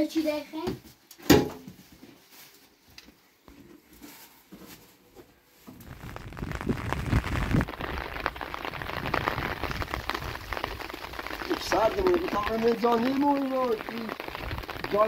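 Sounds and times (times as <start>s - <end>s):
rain pattering: 5.8s - 15.0s.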